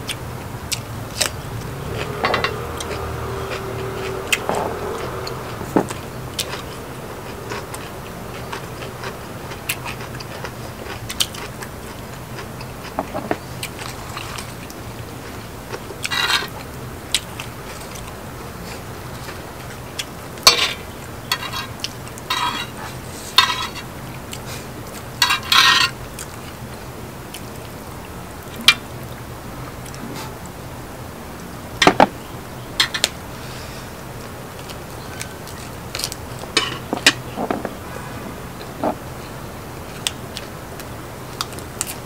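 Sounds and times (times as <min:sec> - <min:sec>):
utensils clinking against a dish: 0:02.0 - 0:03.0, 0:16.0 - 0:16.6, 0:20.4 - 0:23.9, 0:25.2 - 0:26.0, 0:35.5 - 0:37.8.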